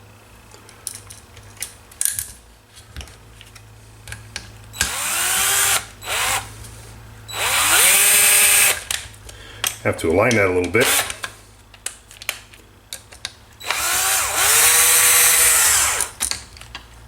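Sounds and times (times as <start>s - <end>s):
electric screwdriver motor whine: 4.8s - 6.5s, 7.3s - 8.8s, 13.6s - 16.2s.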